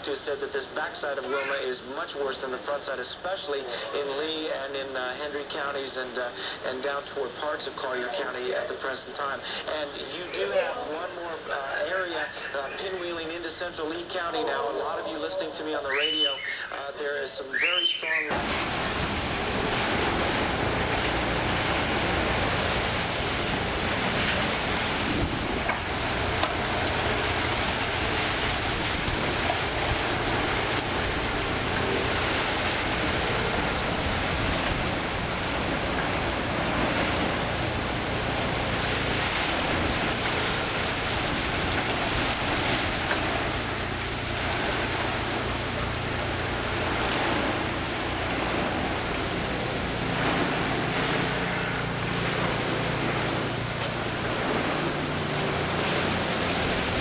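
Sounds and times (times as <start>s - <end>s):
strong wind blowing in gusts: 18.3s - 43.4s
wind buffeting microphone: 18.3s - 53.5s.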